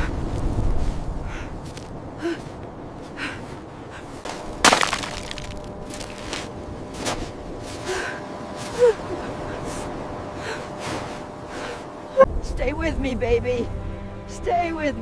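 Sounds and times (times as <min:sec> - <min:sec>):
breathy panting: 0:03.1 - 0:04.3.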